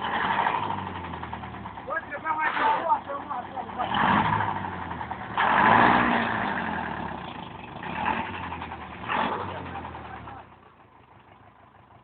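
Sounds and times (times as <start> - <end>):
tractor engine revving: 0.0 - 12.0.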